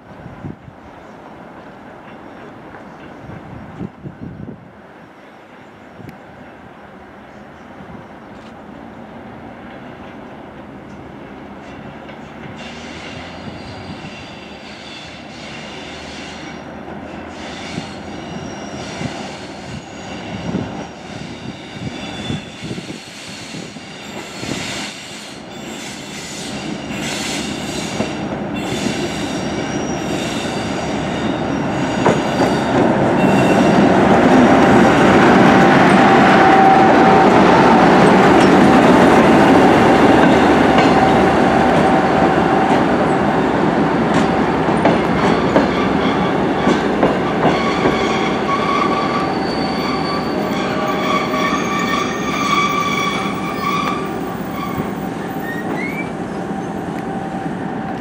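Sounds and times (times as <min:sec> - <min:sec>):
diesel locomotive hauling train: 0:00.0 - 0:58.0
high-pitched wheel squeal: 0:12.6 - 0:33.9, 0:45.2 - 0:56.8.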